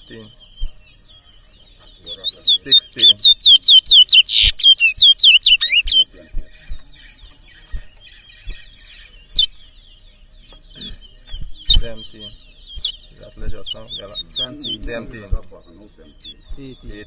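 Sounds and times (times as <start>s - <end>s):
bird twittering: 0.0s - 17.0s
bird whistling falling notes: 2.2s - 6.1s.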